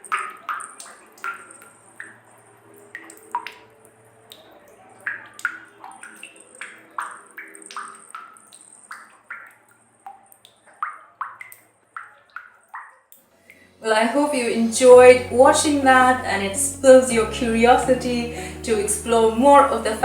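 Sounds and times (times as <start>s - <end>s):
faint low hum: 13.6s - 20.0s.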